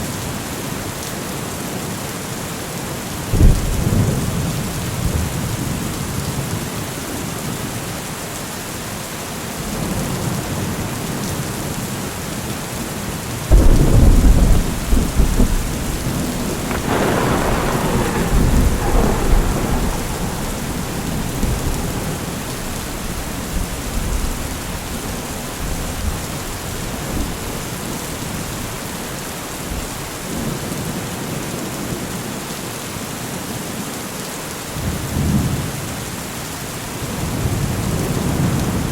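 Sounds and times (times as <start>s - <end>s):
steady rain: 0.0s - 38.9s
thunder rumbling: 13.5s - 29.0s.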